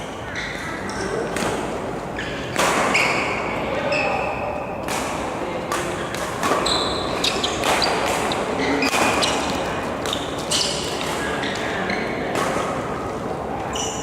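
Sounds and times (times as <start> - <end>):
racket hitting shuttlecock: 1.3 - 3.4, 4.8 - 13.1
shoes squeaking on court: 2.1 - 4.6, 5.9 - 12.3, 13.6 - 14.0.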